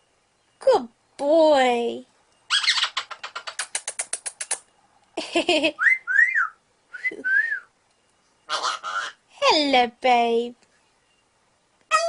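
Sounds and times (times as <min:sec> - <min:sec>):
parrot clicking: 0:03.0 - 0:04.7
parrot whistles: 0:05.8 - 0:07.7
parrot raspy note: 0:08.5 - 0:09.2.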